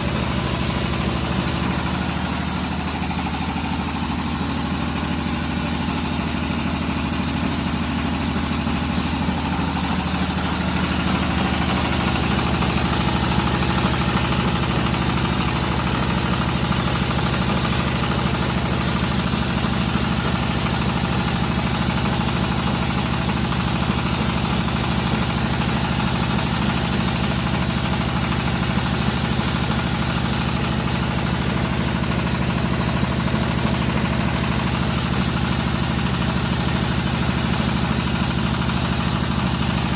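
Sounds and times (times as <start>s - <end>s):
extruder machine humming: 0.0s - 24.4s.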